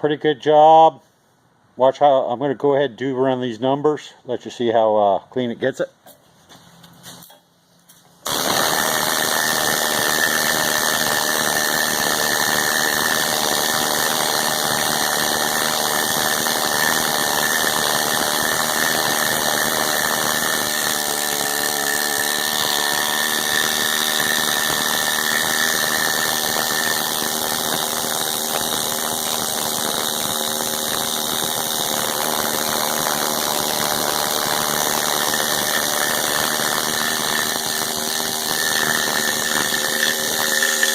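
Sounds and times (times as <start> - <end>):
power tool whining: 8.2 - 40.9.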